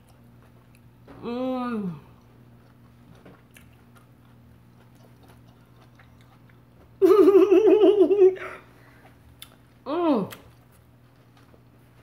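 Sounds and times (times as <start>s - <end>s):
faint crunching chewing: 0.0s - 1.1s, 2.0s - 7.0s, 8.6s - 12.0s
person humming mmm: 1.1s - 2.2s.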